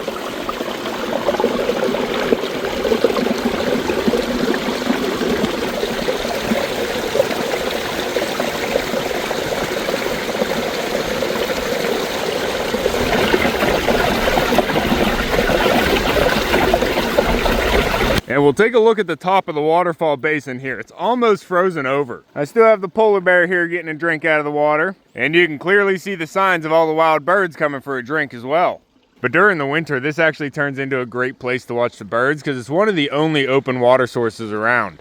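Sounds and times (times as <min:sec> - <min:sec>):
water gurgling under ice: 0:00.0 - 0:18.4.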